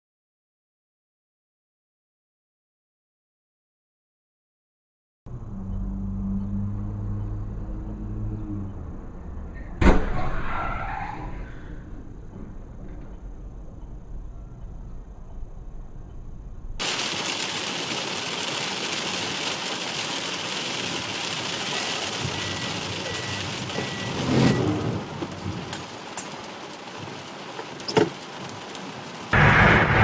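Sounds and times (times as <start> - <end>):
car interior road noise: 5.3 - 10.1, 11.7 - 29.6.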